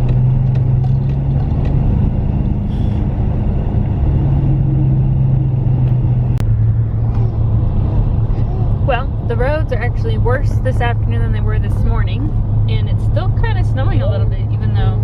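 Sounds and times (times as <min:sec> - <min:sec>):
car engine hum and tyre noise: 0:00.0 - 0:15.0.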